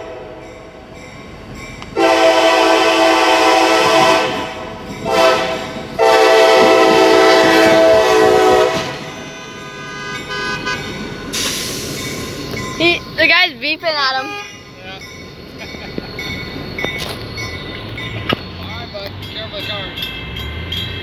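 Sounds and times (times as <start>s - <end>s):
locomotive air horn blasts: 0.0s - 0.7s, 2.0s - 12.0s, 14.2s - 14.6s
passing locomotive rumble: 0.0s - 21.0s.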